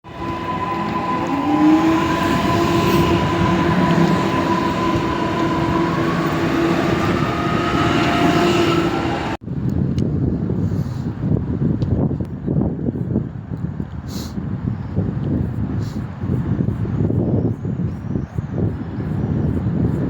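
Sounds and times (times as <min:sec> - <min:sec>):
train rumble and whine: 0:00.0 - 0:09.4
windy sound: 0:00.0 - 0:20.0.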